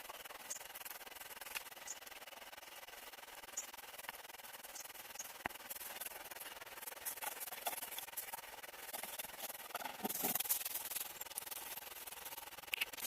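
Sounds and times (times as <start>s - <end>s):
rough rubbing and scraping: 3.9s - 13.0s.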